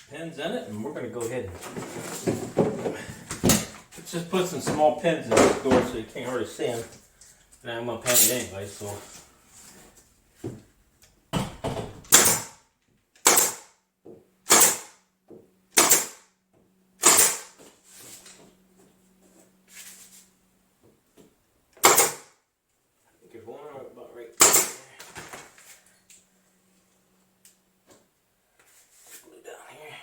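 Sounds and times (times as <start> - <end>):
pin nailer firing: 12.0 - 12.6, 13.2 - 13.7, 14.4 - 15.0, 15.7 - 16.3, 17.0 - 17.6, 21.8 - 22.4, 24.4 - 24.9.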